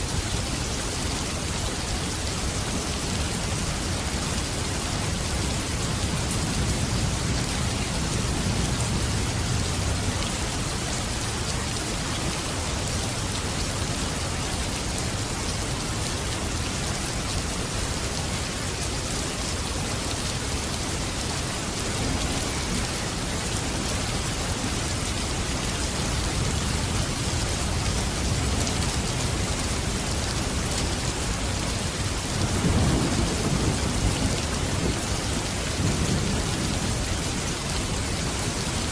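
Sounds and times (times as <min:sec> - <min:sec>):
heavy rain falling: 0:00.0 - 0:38.9
low rolls of thunder: 0:32.3 - 0:37.3.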